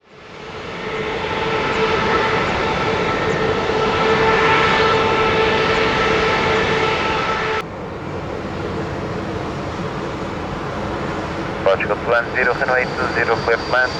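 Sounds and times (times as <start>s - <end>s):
jet engines whining: 0.0s - 13.9s
rushing noise: 0.4s - 7.6s.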